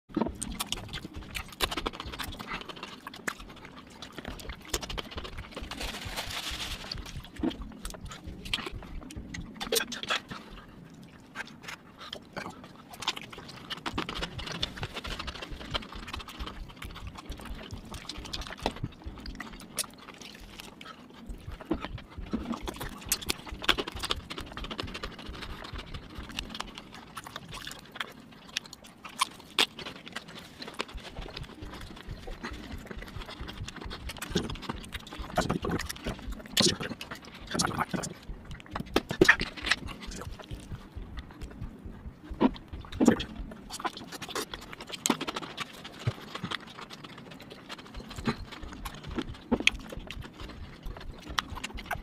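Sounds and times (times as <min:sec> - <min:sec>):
chewing and lip-smacking: 0:00.1 - 0:52.0.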